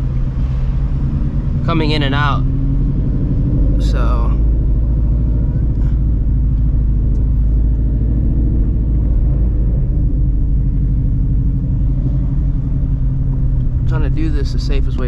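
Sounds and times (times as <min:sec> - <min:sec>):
car engine idling loudly: 0:03.2 - 0:15.0.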